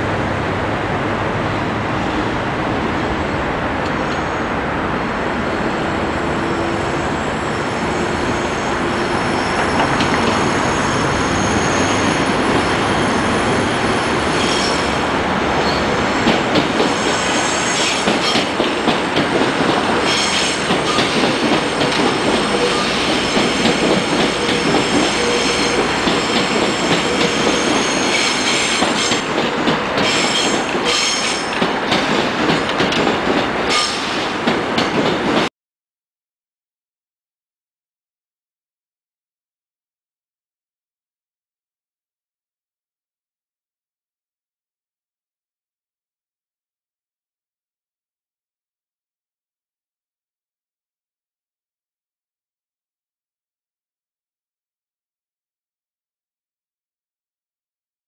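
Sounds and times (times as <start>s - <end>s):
train wheels rumbling on rail: 0.0s - 35.5s
high-pitched wheel squeal: 6.5s - 15.0s.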